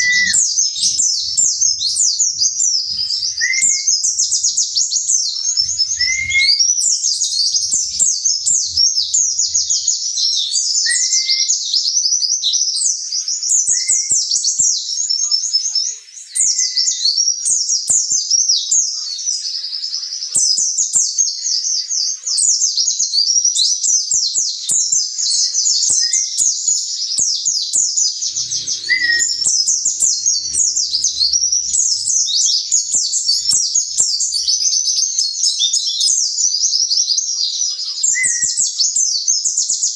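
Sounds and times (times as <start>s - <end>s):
short lower bird chirp: 0.0s - 9.9s, 28.2s - 34.8s
bird twittering song: 0.0s - 14.9s, 28.0s - 39.9s.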